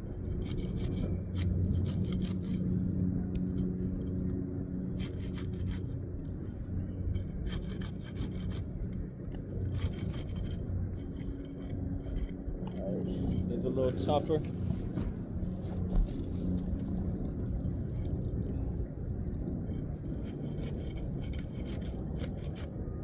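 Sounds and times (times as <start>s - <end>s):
low hum: 0.0s - 23.0s
pry bar scraping shingle: 7.2s - 8.7s, 9.6s - 15.0s, 20.1s - 22.7s.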